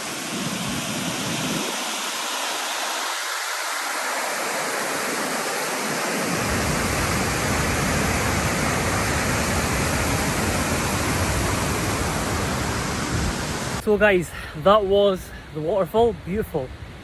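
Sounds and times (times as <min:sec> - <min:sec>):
waterfall rushing: 0:00.0 - 0:14.5.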